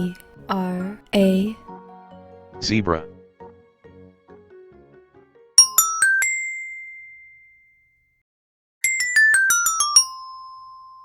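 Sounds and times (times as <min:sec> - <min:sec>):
bright chime jingle: 0:05.6 - 0:08.0, 0:08.8 - 0:11.0.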